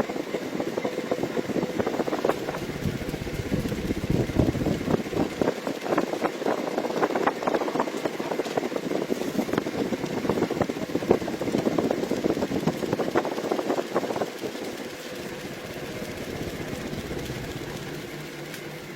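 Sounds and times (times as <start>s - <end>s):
helicopter engine rattling: 0.1s - 18.9s.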